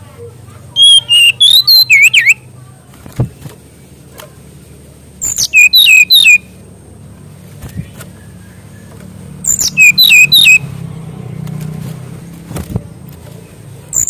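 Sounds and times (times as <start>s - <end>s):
bird whistling song: 0.8s - 2.5s, 5.2s - 6.5s, 7.6s - 10.7s.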